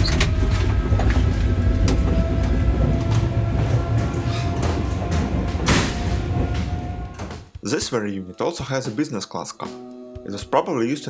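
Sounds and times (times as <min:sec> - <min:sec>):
train wheels rumbling on rails: 0:00.0 - 0:07.5.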